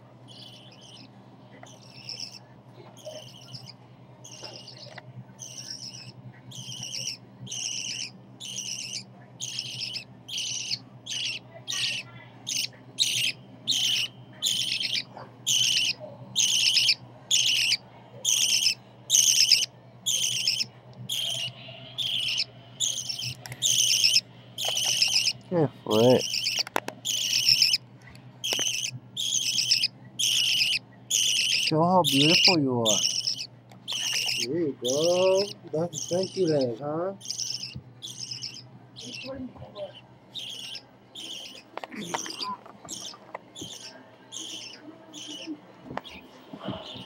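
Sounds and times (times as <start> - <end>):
budgerigar chick chirping: 0.3 - 2.4, 3.0 - 27.8, 28.4 - 46.2.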